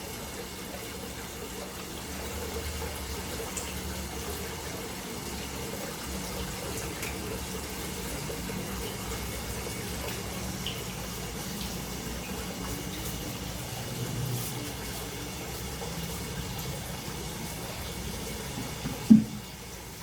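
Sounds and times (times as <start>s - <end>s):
water splashing into pond: 18.5s - 19.6s.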